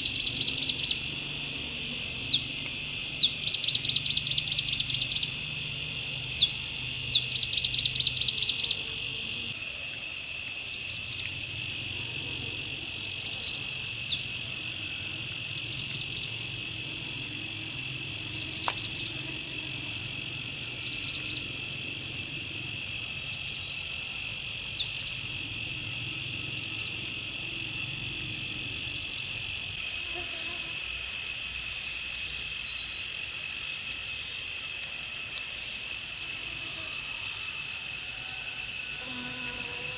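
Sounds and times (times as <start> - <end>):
birds chirping: 0.0 - 9.6, 12.8 - 29.8
insect drone: 0.0 - 39.9.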